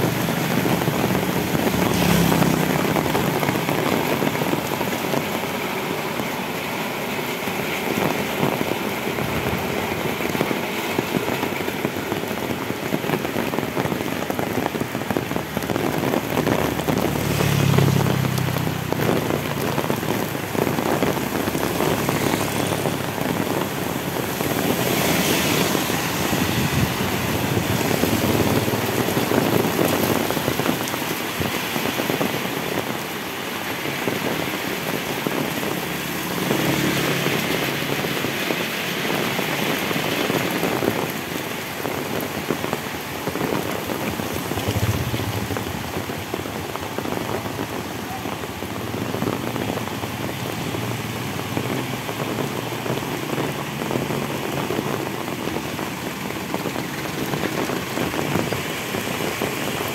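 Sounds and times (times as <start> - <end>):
heavy rain on asphalt: 0.0 - 59.9
vehicle engine passing: 0.1 - 3.8, 15.7 - 30.5, 35.5 - 38.9, 44.0 - 47.8.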